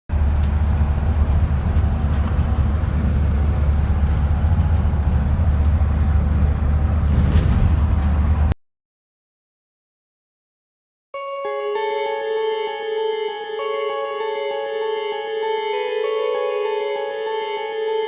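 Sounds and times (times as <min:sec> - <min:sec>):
heavy vehicle low rumble: 0:00.1 - 0:08.6.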